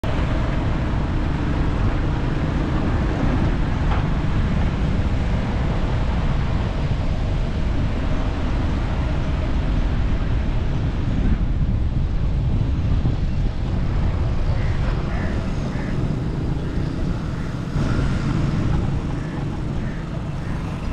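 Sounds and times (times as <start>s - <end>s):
car rumbling on the move: 0.0s - 20.9s
wind buffeting microphone: 0.0s - 20.9s.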